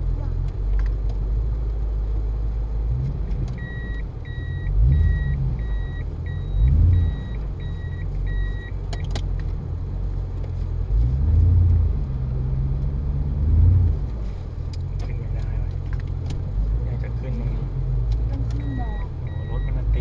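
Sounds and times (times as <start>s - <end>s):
car engine revving: 0.0s - 20.0s
electronic beeps: 3.6s - 8.8s, 18.6s - 19.8s.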